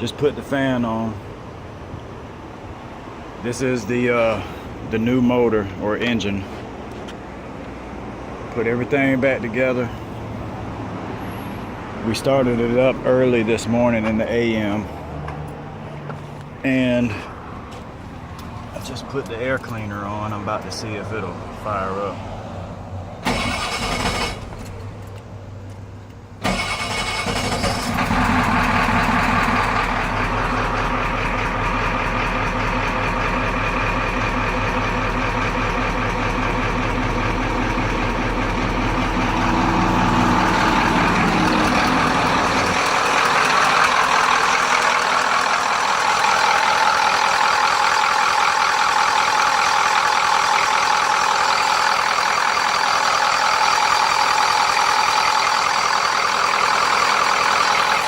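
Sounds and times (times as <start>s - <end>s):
engine starting and running: 23.2s - 58.0s.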